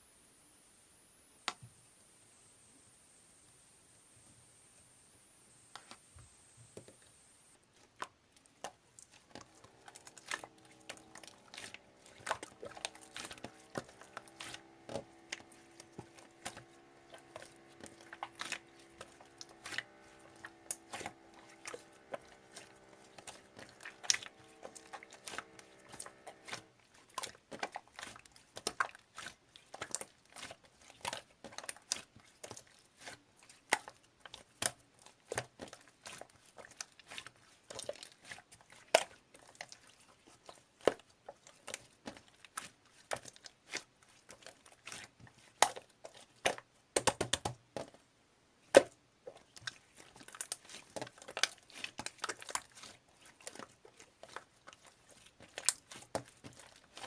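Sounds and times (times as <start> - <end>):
faint steady hum: 0.0 - 27.8.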